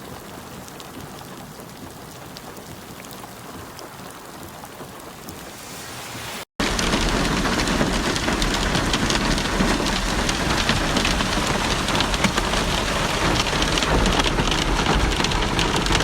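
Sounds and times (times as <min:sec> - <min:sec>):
heavy rain hissing: 0:05.2 - 0:16.0
steady low rumble: 0:05.6 - 0:16.0
raindrops ticking: 0:06.6 - 0:16.0.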